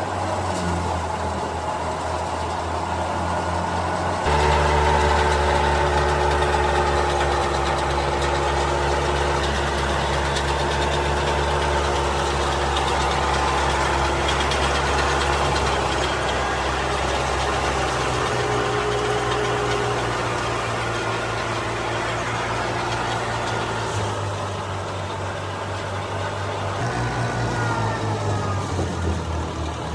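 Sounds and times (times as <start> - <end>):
diesel engine running under load: 0.0 - 29.9
threshing machinery rattle: 0.1 - 29.9.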